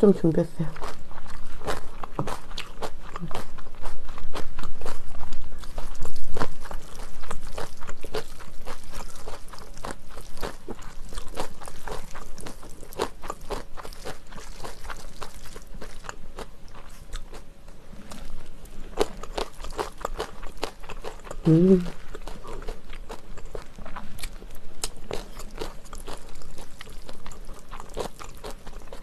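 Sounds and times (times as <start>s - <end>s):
crunchy chewing: 0.8s - 29.0s.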